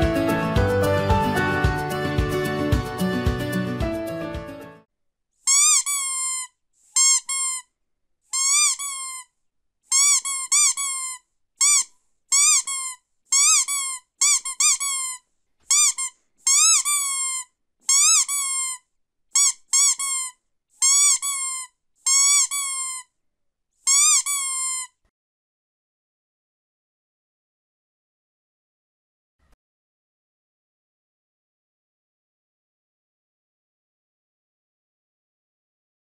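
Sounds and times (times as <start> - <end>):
squeaky dog toy squeaking: 5.4 - 7.7, 8.3 - 9.3, 9.9 - 23.1, 23.8 - 25.0.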